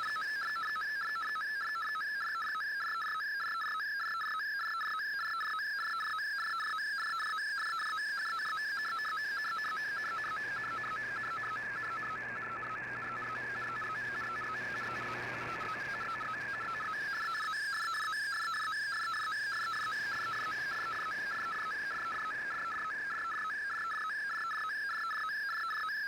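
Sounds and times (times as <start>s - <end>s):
radio picture transmission tones: 9.7s - 17.4s
radio noise and low hum: 9.9s - 17.2s.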